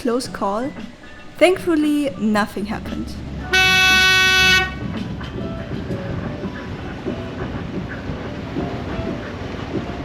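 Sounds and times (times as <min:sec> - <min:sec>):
boat engine running: 0:00.0 - 0:10.0
boat horn blast: 0:03.4 - 0:05.0.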